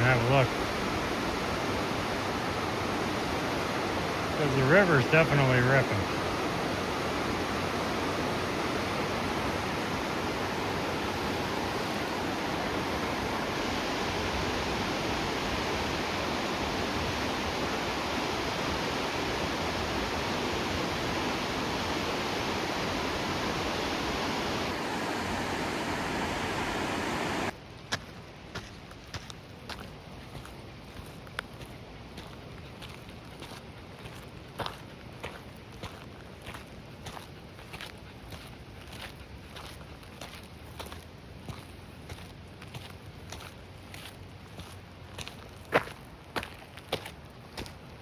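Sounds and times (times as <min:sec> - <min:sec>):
fast river rushing: 0:00.0 - 0:27.6.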